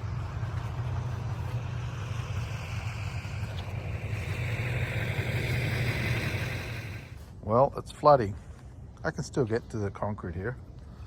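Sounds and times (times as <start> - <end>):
engine idling: 0.0 - 7.3
hiss: 1.2 - 7.2.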